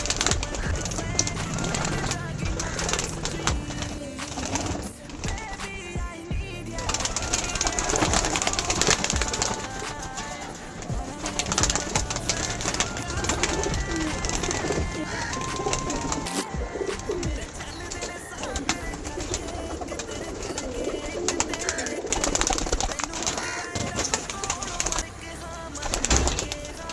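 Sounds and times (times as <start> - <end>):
pigeons cooing: 0.0 - 6.0, 6.7 - 25.0
sharp clicks: 0.0 - 6.3.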